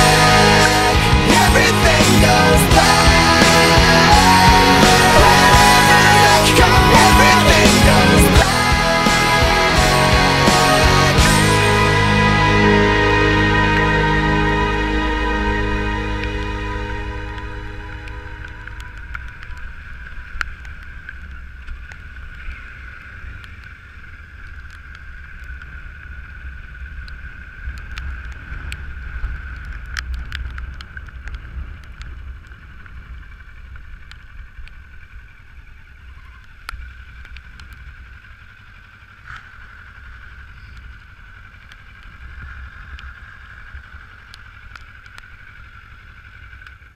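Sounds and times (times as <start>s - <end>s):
high whine: 0.0s - 23.6s
wind and engine rumble: 0.0s - 46.9s.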